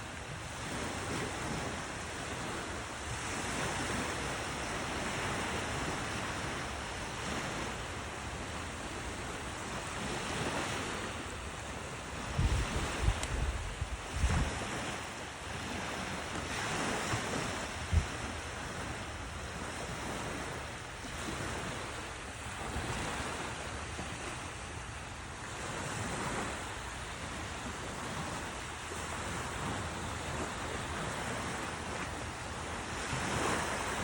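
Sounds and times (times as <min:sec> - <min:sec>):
wind buffeting microphone: 0:00.0 - 0:24.4
ocean surf breaking: 0:00.0 - 0:34.0.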